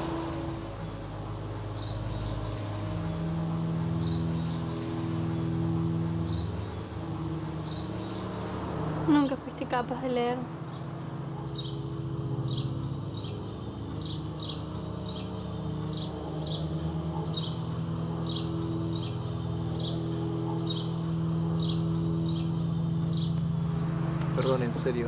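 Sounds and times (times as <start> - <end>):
bird chirping: 0.0 - 25.0
low steady drone: 0.0 - 25.0.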